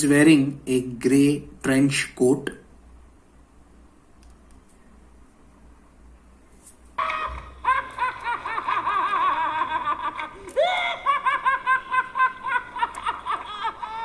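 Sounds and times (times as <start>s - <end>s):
man cackling laugh: 7.0s - 14.0s.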